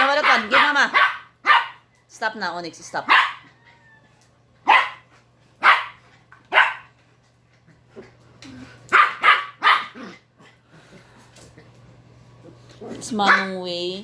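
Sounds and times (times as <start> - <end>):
dog barking: 0.0 - 1.8, 3.0 - 3.5, 4.6 - 6.9, 8.9 - 10.0, 13.2 - 13.6.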